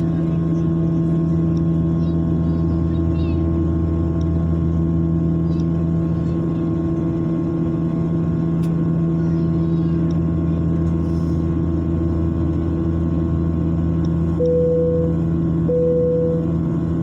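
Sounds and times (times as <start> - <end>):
aircraft cabin drone: 0.0 - 17.0
steady beep: 14.4 - 16.6.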